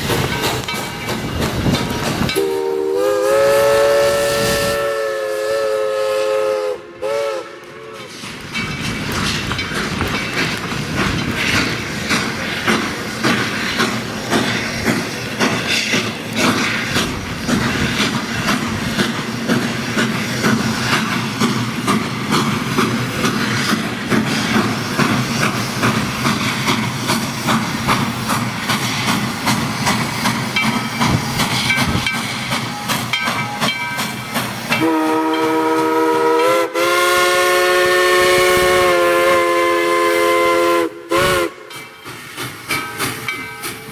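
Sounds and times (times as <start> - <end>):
train wheels clicking on rails: 0.0 - 43.9
chime steam whistle: 2.3 - 8.2, 32.6 - 42.2.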